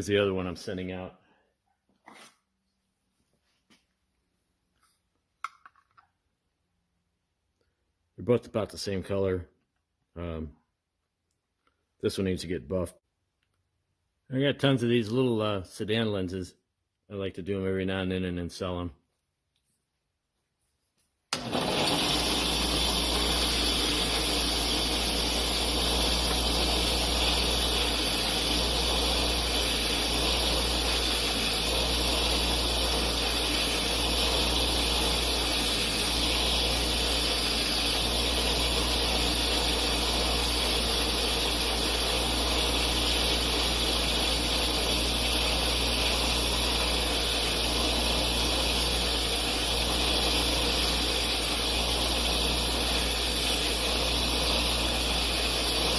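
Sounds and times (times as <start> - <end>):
bench grinder motor hum: 21.4 - 55.9
buffing wheel hissing on plastic: 21.6 - 55.9.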